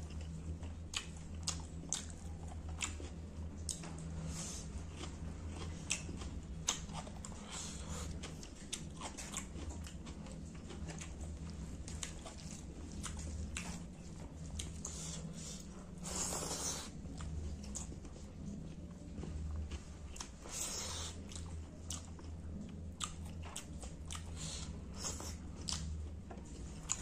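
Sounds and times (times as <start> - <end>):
wet chewing and lip smacks: 0.1 - 4.0, 19.2 - 26.0.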